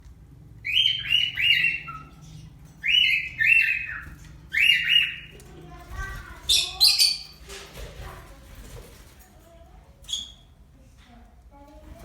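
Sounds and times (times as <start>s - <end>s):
pet birds calling: 0.6s - 7.6s, 10.0s - 10.6s.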